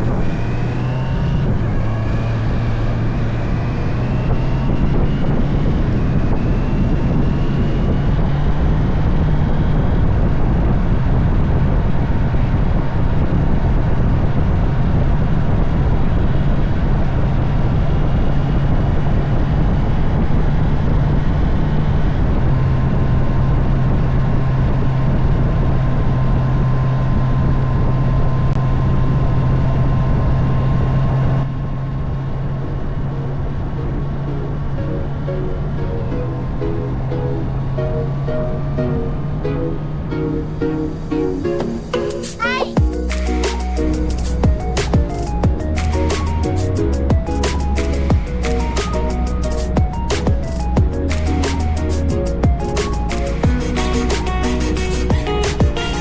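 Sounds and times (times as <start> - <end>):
motorcycle engine cruising: 0.0 - 42.0.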